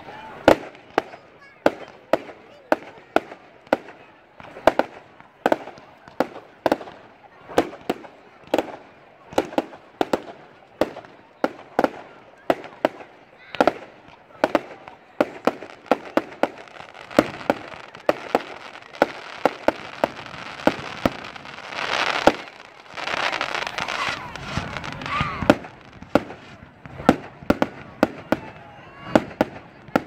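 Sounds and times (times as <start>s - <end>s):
fireworks crackling hiss: 0.0s - 28.5s
fireworks banging: 0.4s - 30.0s.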